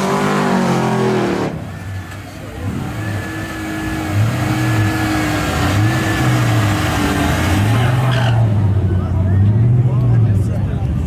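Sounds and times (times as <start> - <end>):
truck engine running: 0.2 - 11.0.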